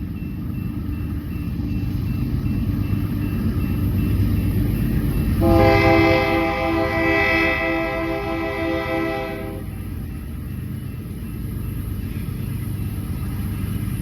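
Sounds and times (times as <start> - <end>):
diesel locomotive rumbling: 0.0 - 14.0
locomotive air horn chord: 5.4 - 9.8.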